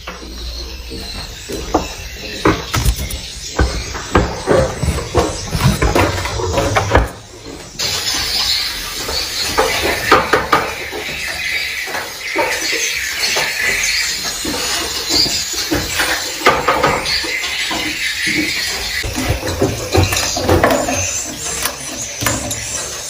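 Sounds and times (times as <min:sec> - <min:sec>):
swiftlets chirping and clicking: 0:01.0 - 0:05.8.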